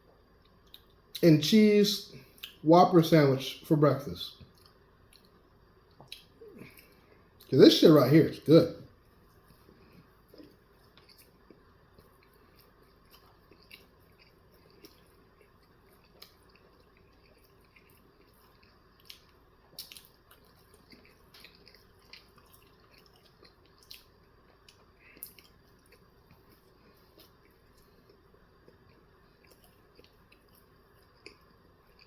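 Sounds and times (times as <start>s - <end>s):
wet mouth chewing clicks: 10.3s - 32.0s.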